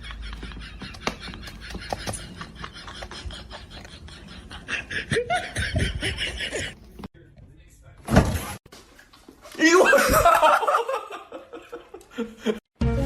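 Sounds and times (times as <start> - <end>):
person laughing: 0.0 - 6.8, 9.7 - 12.6.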